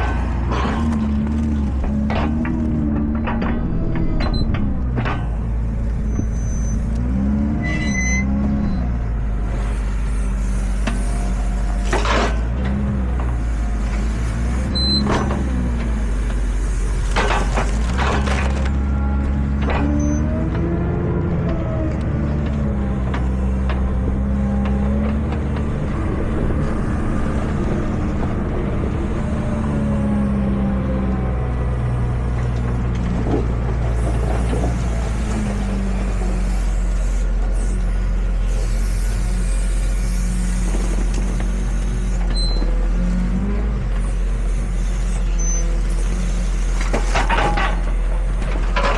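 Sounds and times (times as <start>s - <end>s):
tractor engine running: 0.0s - 48.9s.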